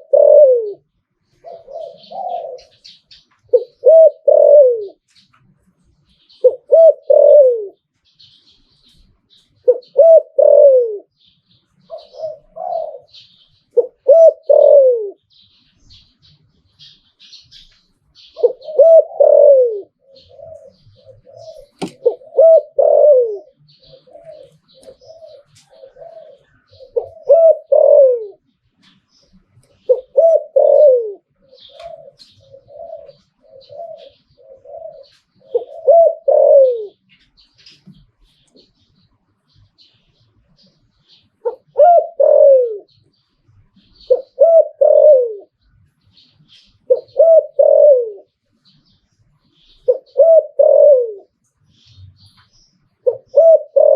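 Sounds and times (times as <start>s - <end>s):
dove cooing: 0.0s - 5.2s, 6.1s - 16.0s, 16.8s - 38.8s, 41.0s - 48.8s, 49.6s - 53.9s
small birds chirping: 0.0s - 53.9s.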